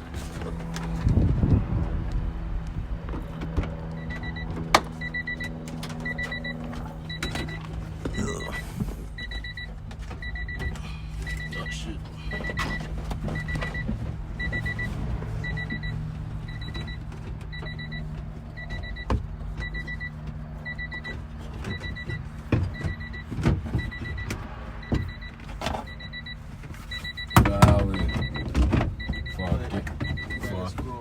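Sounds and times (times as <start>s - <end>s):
steady low hum: 0.0s - 24.2s
car warning chime beeping: 3.2s - 31.0s.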